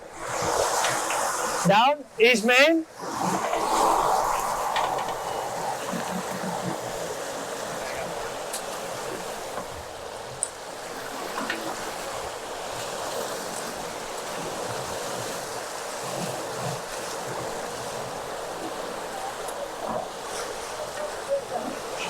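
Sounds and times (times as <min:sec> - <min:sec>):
rushing water: 0:00.0 - 0:22.0
wind: 0:00.0 - 0:22.0.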